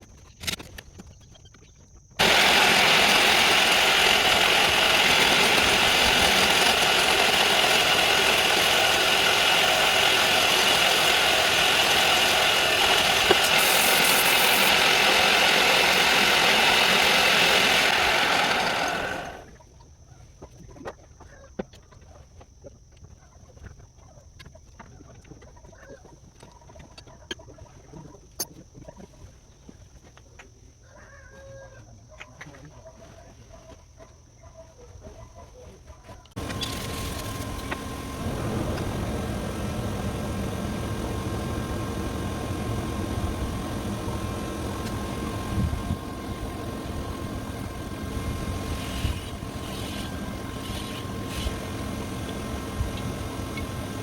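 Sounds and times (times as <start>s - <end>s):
loud mechanical running noise: 2.2s - 19.6s, 36.4s - 54.0s.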